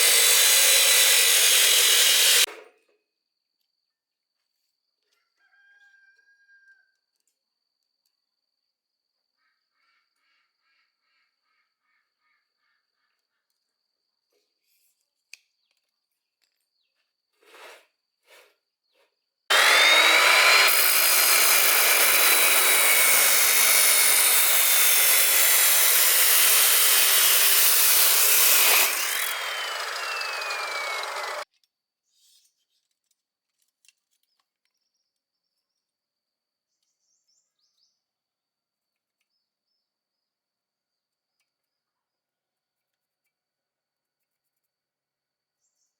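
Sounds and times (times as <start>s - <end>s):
power tool whining under load: 0.0s - 2.5s, 19.5s - 31.4s.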